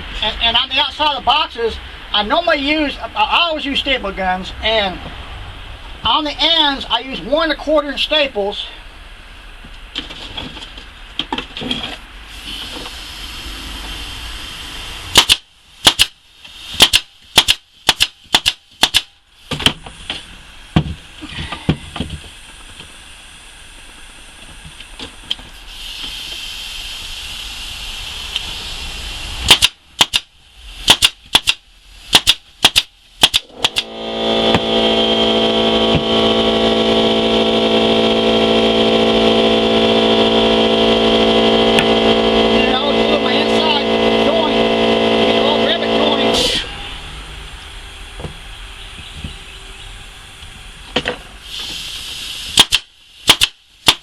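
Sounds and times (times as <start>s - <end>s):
staple gun shots into wood: 15.2s - 16.2s, 16.8s - 19.1s, 29.5s - 30.3s, 30.9s - 33.8s, 52.6s - 54.0s.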